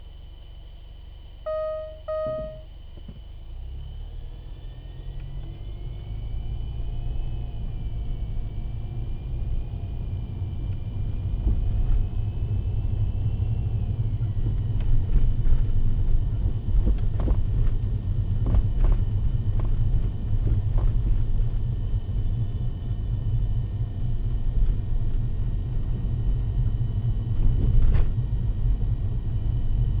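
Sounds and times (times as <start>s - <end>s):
short electronic beeps: 1.5s - 2.7s
car cabin road rumble: 4.8s - 30.0s.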